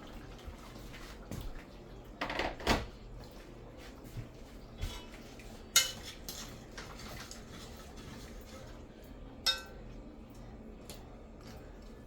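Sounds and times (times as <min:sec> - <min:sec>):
metal pots and utensils clinking: 0:04.8 - 0:07.5, 0:09.4 - 0:09.8.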